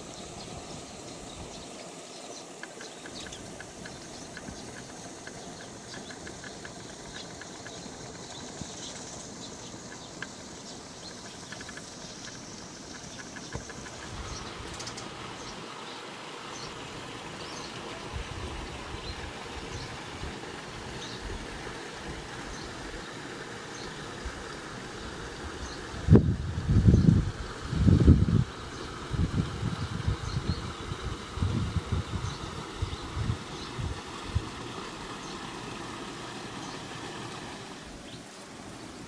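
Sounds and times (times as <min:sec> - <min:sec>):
small birds chirping: 0:00.0 - 0:26.2, 0:28.4 - 0:39.0
steady rushing noise: 0:00.0 - 0:39.0.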